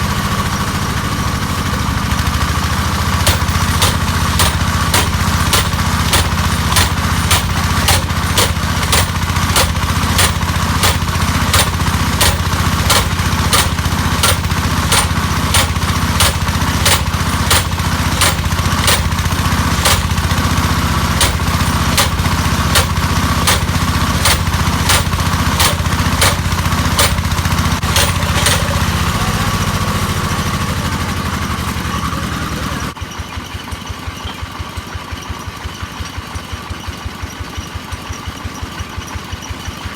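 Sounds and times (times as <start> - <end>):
small engine droning: 0.0 - 39.9
hammer blows: 1.6 - 29.8.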